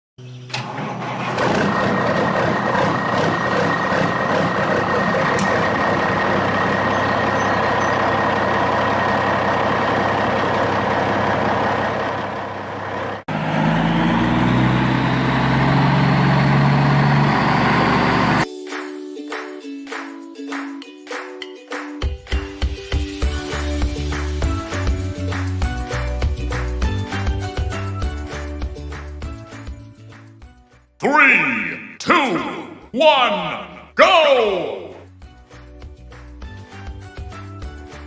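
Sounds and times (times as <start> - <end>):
heavy vehicle engine running: 0.5 - 18.4.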